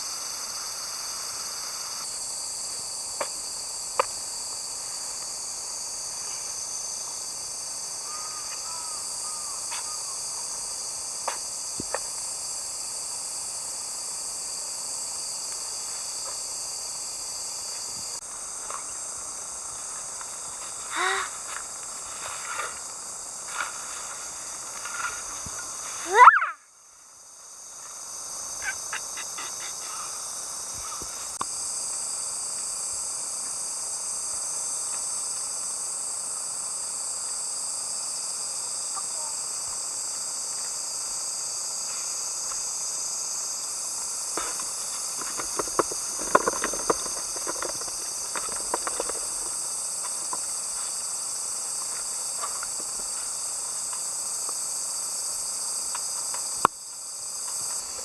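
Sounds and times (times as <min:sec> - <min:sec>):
insects droning: 0:00.0 - 0:58.0
handling clicks and rustles: 0:44.4 - 0:50.9.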